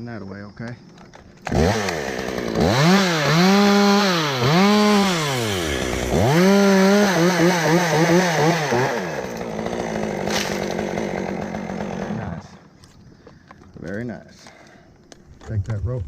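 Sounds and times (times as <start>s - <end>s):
chainsaw engine revving: 1.4s - 12.7s.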